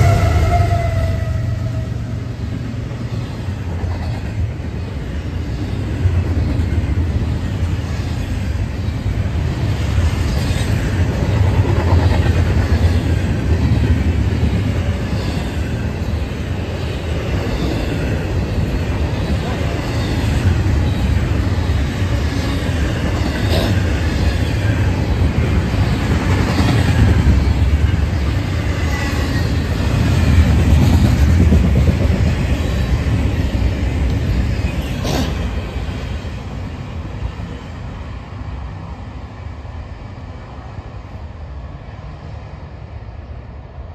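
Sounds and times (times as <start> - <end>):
steel wheels rumbling on rail: 0.0 - 43.9
train cars clanking: 2.6 - 36.1.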